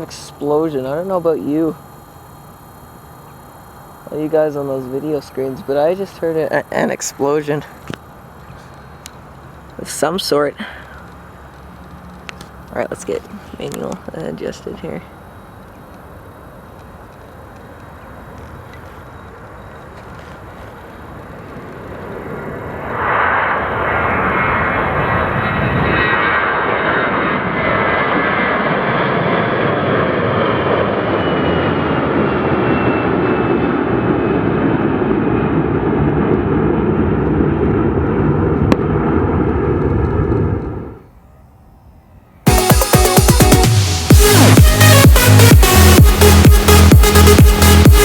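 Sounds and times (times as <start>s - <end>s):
jet engines at takeoff: 0.0s - 48.0s.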